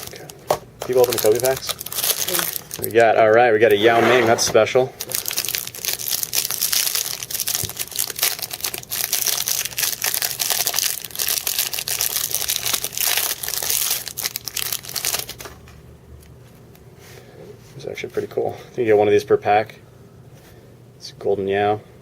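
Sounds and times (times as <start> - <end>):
plastic wrapper crinkling: 0.0 - 3.9, 5.0 - 16.8.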